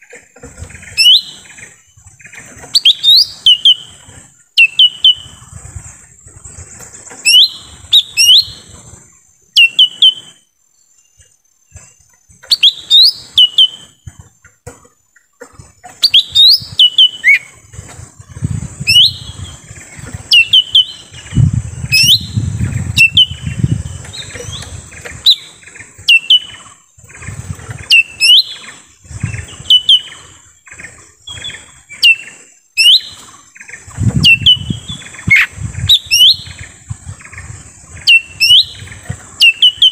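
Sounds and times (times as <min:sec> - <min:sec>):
bird whistling sharp notes: 0:01.0 - 0:01.4, 0:02.8 - 0:04.0, 0:04.6 - 0:05.4, 0:07.3 - 0:08.7, 0:09.6 - 0:10.5, 0:12.5 - 0:14.0, 0:16.0 - 0:17.5, 0:18.8 - 0:19.4, 0:20.3 - 0:26.6, 0:27.9 - 0:28.7, 0:29.5 - 0:30.2, 0:31.3 - 0:33.2, 0:34.2 - 0:36.6, 0:38.1 - 0:39.9.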